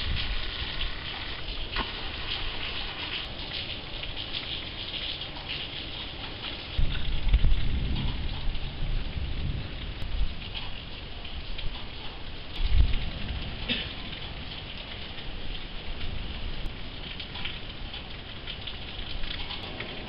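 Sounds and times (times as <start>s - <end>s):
thunder rumble: 0.0s - 3.5s, 6.8s - 11.6s, 12.5s - 14.6s, 16.0s - 20.0s
heavy rain pattering: 0.0s - 20.0s.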